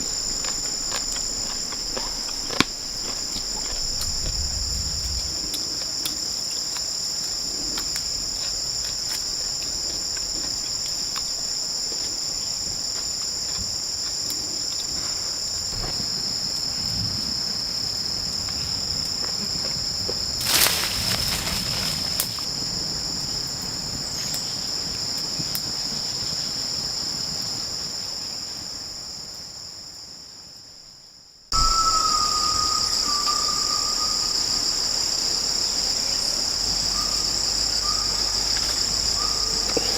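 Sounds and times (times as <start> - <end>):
insect chorus shrill drone: 0.0 - 29.7, 31.5 - 39.9
brief rustle: 20.4 - 22.5.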